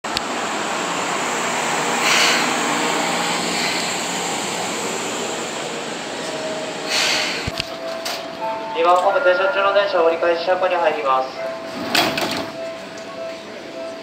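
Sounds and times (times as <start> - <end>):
train wheels running on rails: 0.0 - 9.2.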